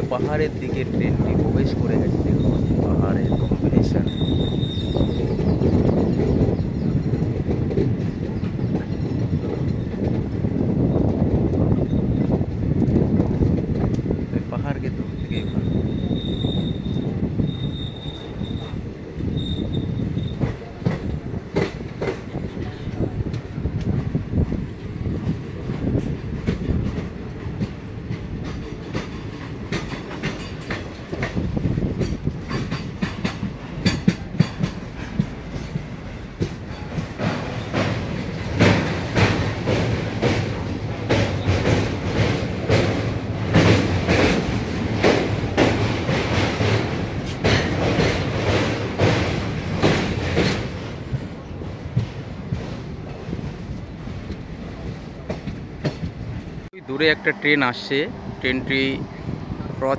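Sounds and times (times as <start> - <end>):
train rumbling on board: 0.0 - 59.9
wheels clattering over rail joints: 24.7 - 56.7.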